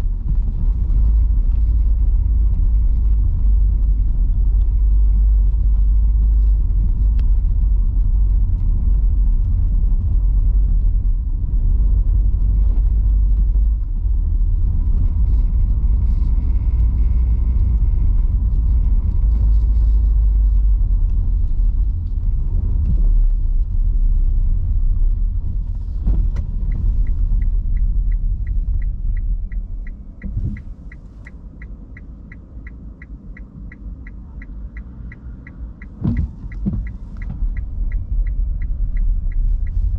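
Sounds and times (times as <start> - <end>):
car driving on wet road: 0.0 - 39.9
turn signal ticking: 24.6 - 39.9.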